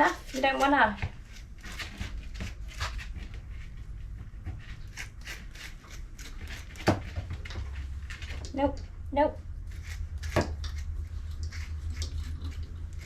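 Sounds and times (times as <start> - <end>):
low steady hum: 0.0 - 13.0
brush scratching through dog coat: 9.7 - 13.0.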